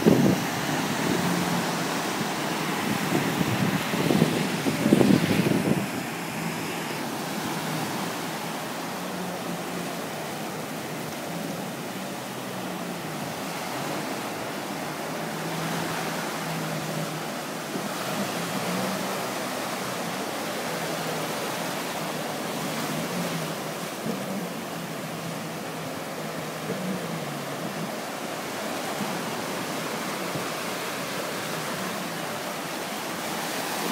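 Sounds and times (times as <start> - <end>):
wind buffeting microphone: 0.0 - 8.2
faint jet ski engine drone: 0.0 - 33.9
surf rushing: 0.0 - 33.9
wind: 0.0 - 33.9.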